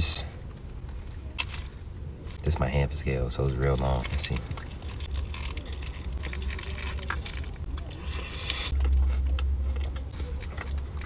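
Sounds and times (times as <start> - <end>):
person chewing food: 3.8 - 11.0.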